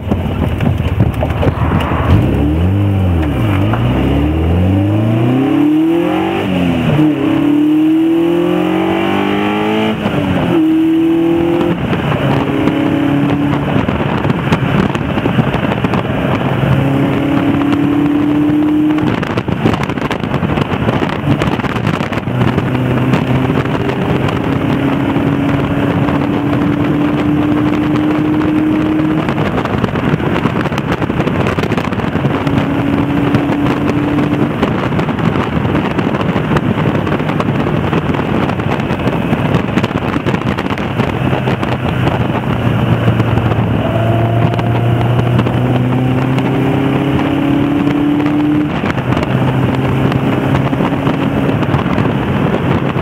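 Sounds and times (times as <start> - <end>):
car engine accelerating: 0.0 - 53.0
road noise: 0.0 - 53.0
wind noise: 0.0 - 53.0.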